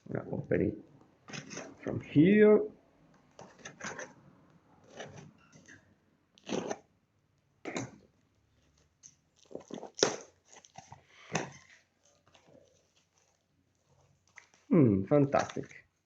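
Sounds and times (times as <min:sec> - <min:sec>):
package wrapping tearing and crinkling: 0:09.0 - 0:14.7.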